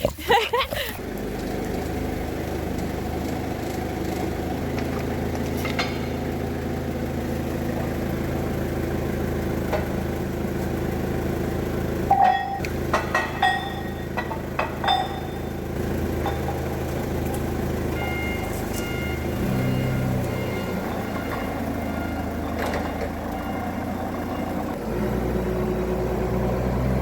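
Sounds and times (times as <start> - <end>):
engine idling: 0.8 - 27.0
metallic clinks: 12.1 - 15.6.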